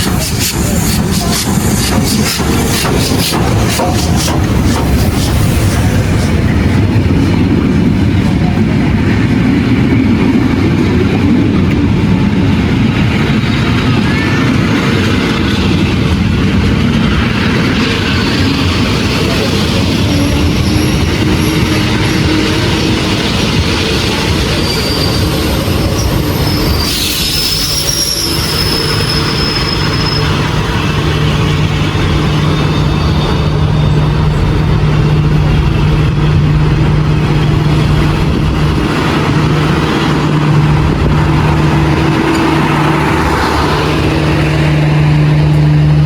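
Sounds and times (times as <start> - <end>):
train running on rails: 0.0 - 46.0
high-pitched wheel squeals: 17.8 - 34.6.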